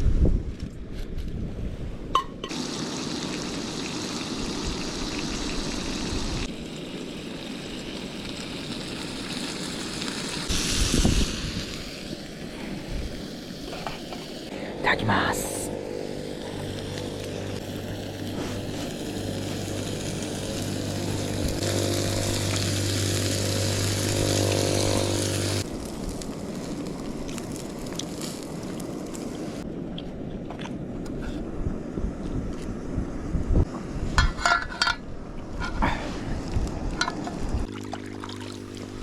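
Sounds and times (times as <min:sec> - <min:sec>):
wind-like hiss: 0:00.0 - 0:39.0
engine running: 0:14.5 - 0:25.7.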